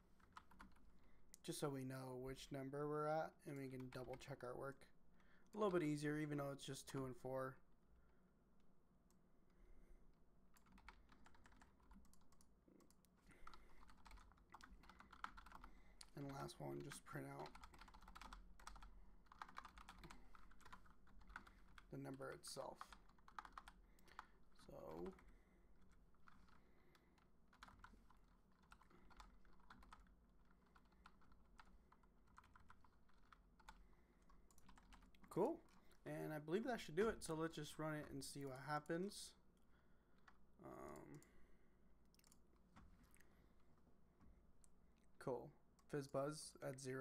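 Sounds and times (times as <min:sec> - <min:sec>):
typing on keyboard: 0:00.2 - 0:00.8, 0:10.6 - 0:25.3, 0:26.2 - 0:35.3.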